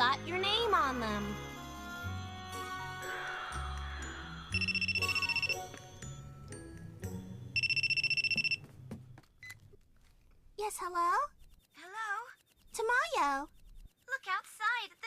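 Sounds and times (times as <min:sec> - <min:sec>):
background music: 0:00.0 - 0:09.2
telephone ringing: 0:04.5 - 0:06.0, 0:07.5 - 0:08.7.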